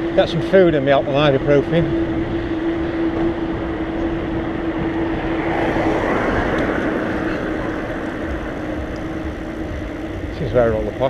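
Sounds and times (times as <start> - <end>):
bike tyres on tarmac: 0.0 - 11.0
steady low hum: 0.0 - 11.0
traffic passing: 0.0 - 11.0
wind noise: 0.0 - 11.0.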